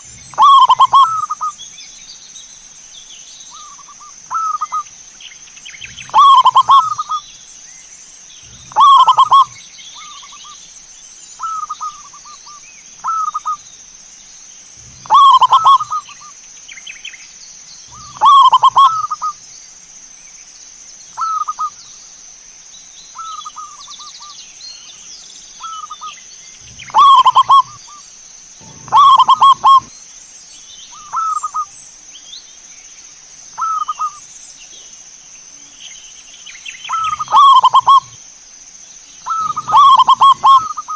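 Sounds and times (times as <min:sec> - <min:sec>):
dove cooing: 0:00.0 - 0:01.5, 0:05.9 - 0:07.2, 0:08.4 - 0:10.1, 0:14.8 - 0:16.2, 0:17.9 - 0:19.3, 0:26.6 - 0:27.8, 0:28.6 - 0:29.9, 0:31.0 - 0:31.7, 0:36.9 - 0:38.2, 0:39.2 - 0:40.9
steady high-pitched tone: 0:26.6 - 0:27.8, 0:28.6 - 0:29.9, 0:39.3 - 0:40.9.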